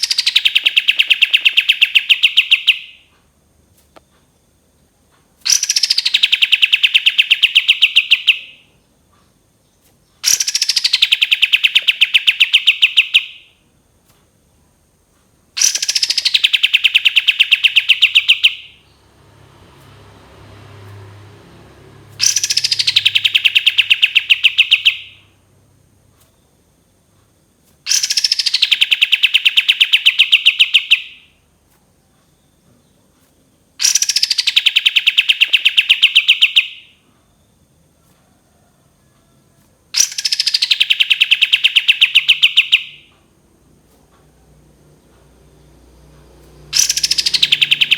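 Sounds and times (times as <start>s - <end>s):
songbird rapid singing: 0.0s - 3.0s, 5.5s - 13.4s, 15.6s - 19.2s, 22.1s - 25.3s, 27.9s - 31.2s, 32.2s - 36.9s, 40.0s - 43.1s, 46.6s - 47.9s.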